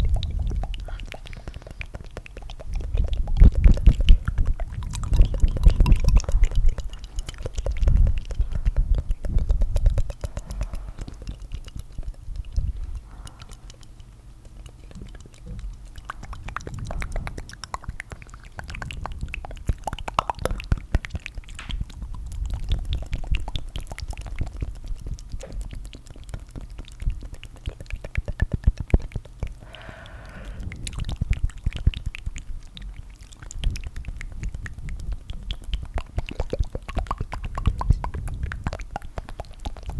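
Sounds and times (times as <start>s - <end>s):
wet tongue clicks and flutters: 0.0s - 39.9s
deep rumble: 29.6s - 31.8s.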